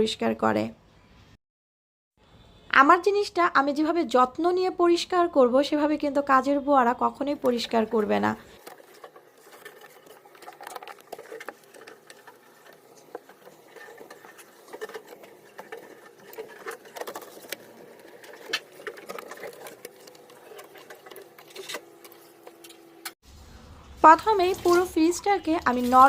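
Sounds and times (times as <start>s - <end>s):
scrubbing and scraping plastic: 7.2s - 23.2s, 24.1s - 26.0s.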